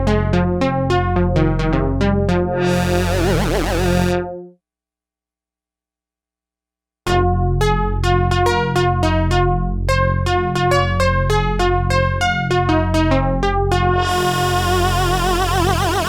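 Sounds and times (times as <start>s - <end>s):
synthesizer bass line: 0.9s - 4.5s, 10.2s - 16.0s
synthesizer playing short notes: 2.5s - 4.4s, 14.0s - 16.0s.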